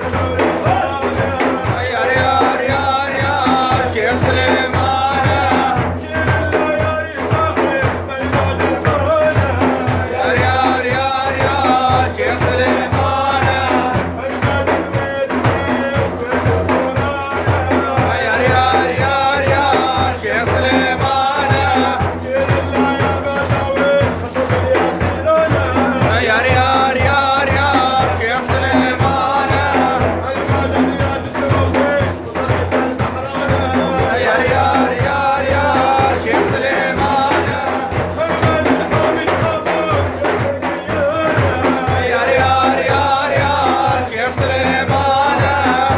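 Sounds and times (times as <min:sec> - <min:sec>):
man singing: 0:00.0 - 0:45.9
steady drum beat: 0:00.0 - 0:45.9.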